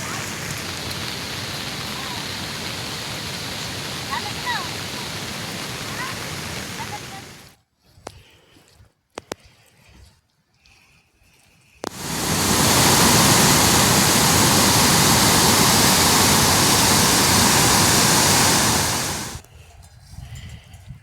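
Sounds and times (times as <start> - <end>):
loud rushing water: 0.0 - 7.5, 11.9 - 19.4.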